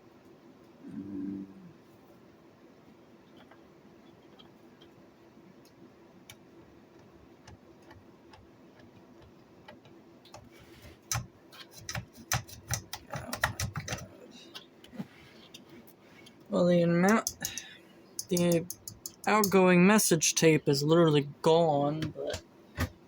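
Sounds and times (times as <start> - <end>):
faint steady hum: 0.0 - 23.0
sharp clicks and knocks: 5.6 - 14.7, 17.0 - 19.6.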